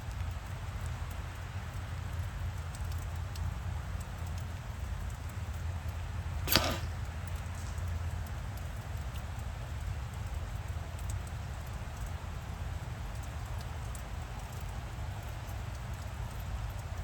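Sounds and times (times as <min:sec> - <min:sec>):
blowgun dart puff: 0:06.5 - 0:07.1.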